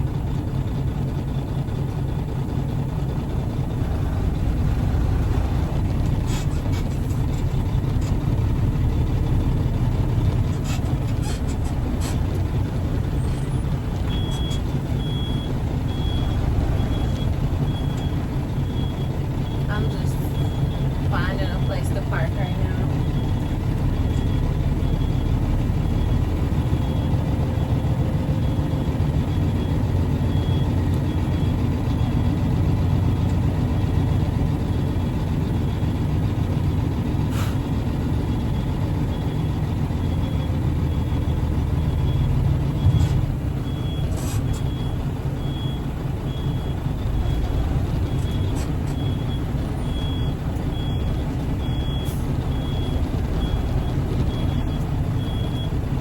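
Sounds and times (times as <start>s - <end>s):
diesel truck engine idling: 0.0s - 56.0s
backup alarm beeping: 13.1s - 32.2s, 40.1s - 55.8s
short hissing or clunking: 37.3s - 37.6s.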